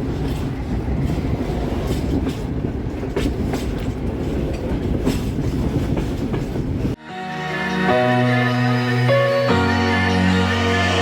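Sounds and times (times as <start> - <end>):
wheels clacking over rail joints: 0.0 - 6.9
train wheels rumbling on rails: 0.0 - 7.0.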